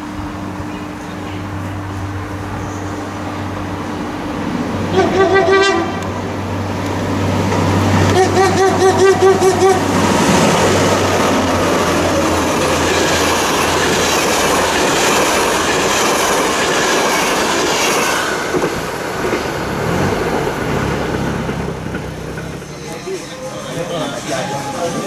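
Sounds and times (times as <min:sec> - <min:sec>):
train wheels clattering over rails: 0:06.7 - 0:25.0.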